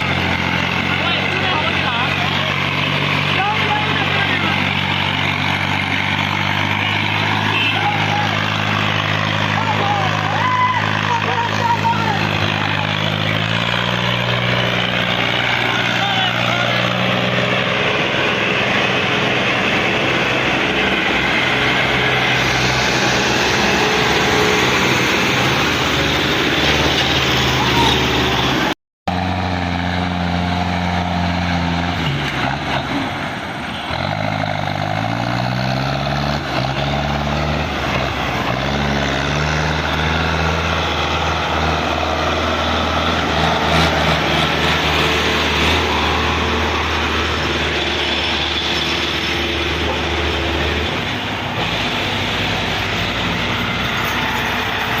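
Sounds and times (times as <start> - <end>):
tractor diesel engine running: 0.0 - 55.0
heavy noisy wash: 15.4 - 28.7.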